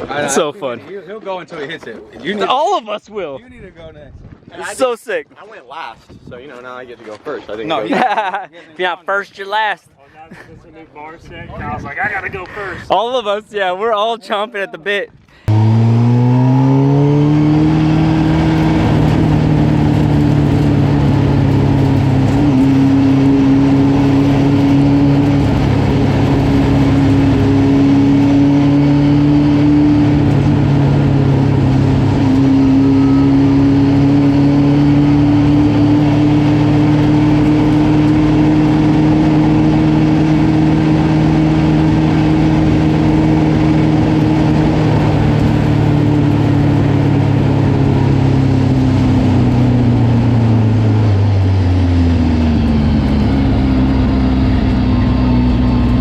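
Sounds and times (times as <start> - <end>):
truck engine revving: 15.5 - 56.0.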